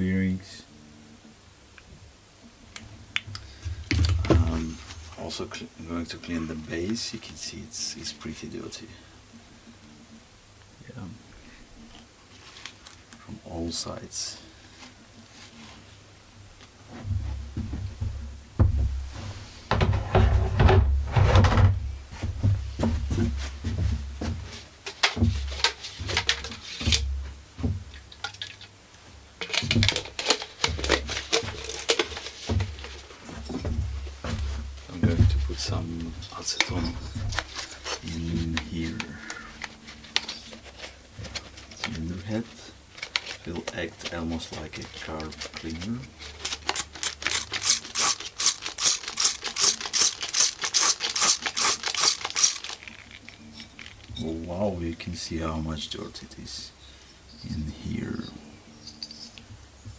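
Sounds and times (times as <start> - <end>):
engine parts scraping and knocking: 18.7 - 21.8, 43.0 - 54.4.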